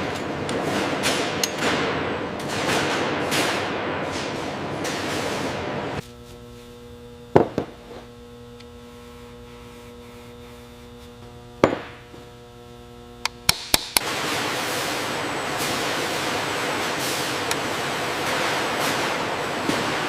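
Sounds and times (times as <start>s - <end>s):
machine hum: 0.0s - 20.0s.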